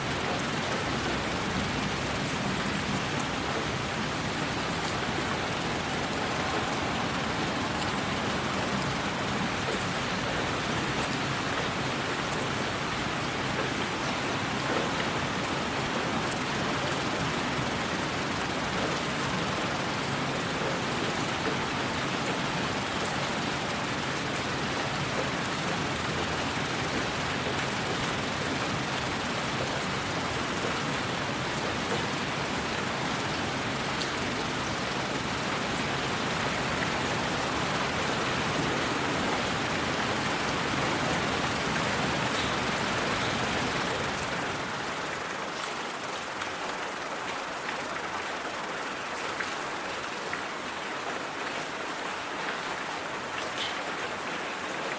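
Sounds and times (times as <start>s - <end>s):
raindrops ticking: 0.0s - 50.8s
rain rushing: 0.0s - 54.9s.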